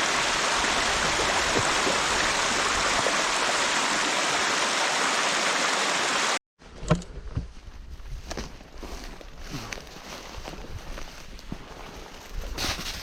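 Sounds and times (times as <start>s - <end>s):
running water rushing: 0.0s - 6.4s.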